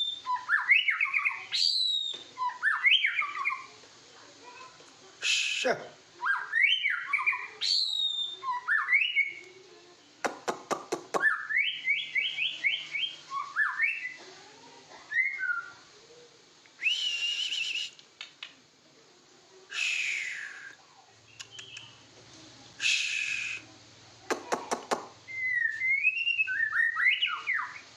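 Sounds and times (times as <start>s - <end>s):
bird singing whistled notes: 0.0s - 3.7s, 6.2s - 9.5s, 11.2s - 14.2s, 15.1s - 15.8s, 16.8s - 18.0s, 19.8s - 22.0s, 22.8s - 23.6s, 25.2s - 27.9s
bird clicks: 18.0s - 18.6s, 21.3s - 21.9s.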